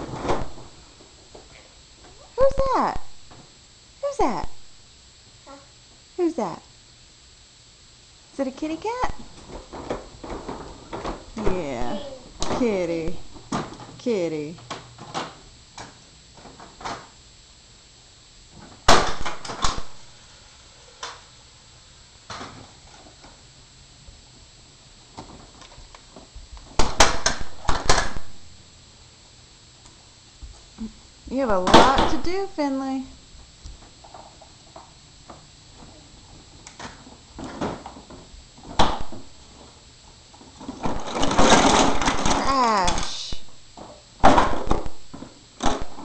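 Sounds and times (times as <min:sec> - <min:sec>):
objects knocking and bumping: 0:40.6 - 0:43.2.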